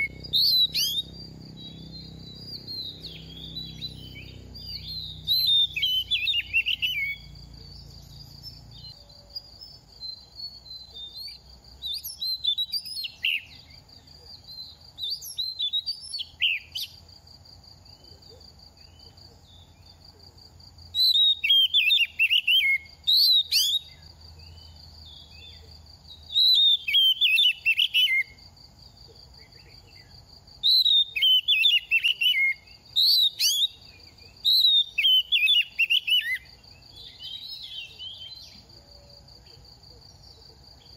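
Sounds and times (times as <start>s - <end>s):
bird singing whistled phrases: 0.0s - 13.8s, 14.4s - 17.0s, 21.0s - 24.0s, 26.3s - 28.4s, 30.6s - 38.6s.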